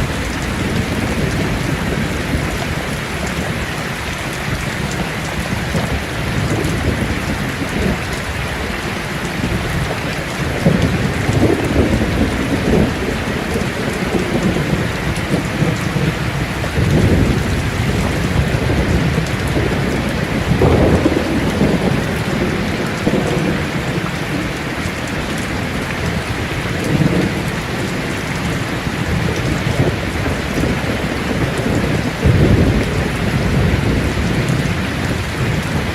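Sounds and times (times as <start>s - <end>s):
heavy rain on a tin roof: 0.0s - 35.9s
rolling thunder: 0.0s - 35.9s.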